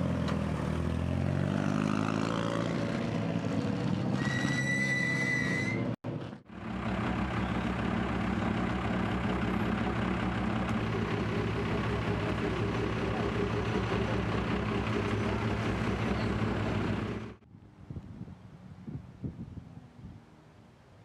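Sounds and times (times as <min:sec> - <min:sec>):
high whistle-like tone: 0:04.2 - 0:06.0
engine idling: 0:06.4 - 0:17.4.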